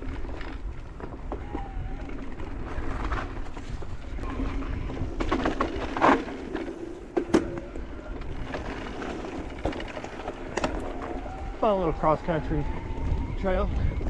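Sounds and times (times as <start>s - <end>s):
tyre and wind noise: 0.0s - 14.0s
bike knocking and rattling: 5.0s - 11.5s.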